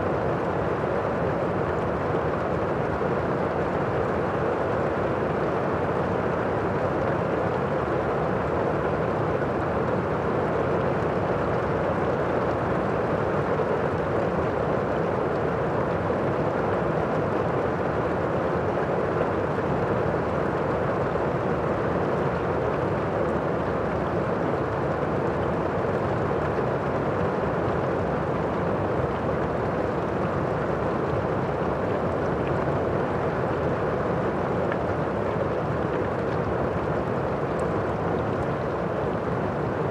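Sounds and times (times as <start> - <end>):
muffled rain: 0.0 - 39.9.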